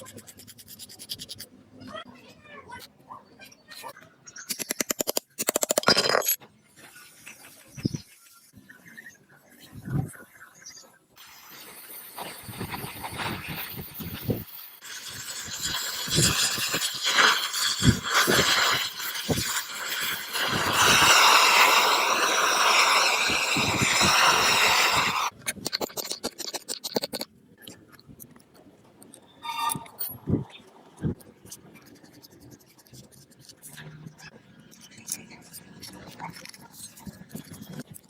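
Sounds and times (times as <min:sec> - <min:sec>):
scraping on metal: 0:29.2 - 0:30.6.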